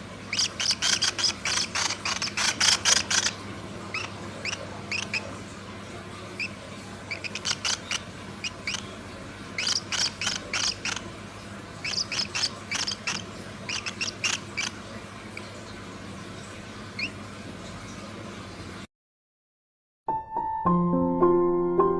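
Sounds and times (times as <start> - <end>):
small birds chirping: 0.2 - 5.4, 6.2 - 15.8, 16.9 - 17.2.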